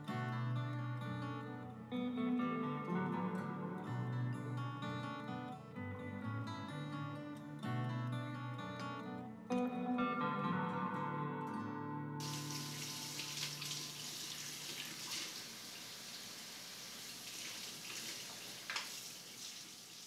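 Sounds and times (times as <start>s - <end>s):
guitar note: 0.0s - 14.0s
water running: 12.2s - 20.0s.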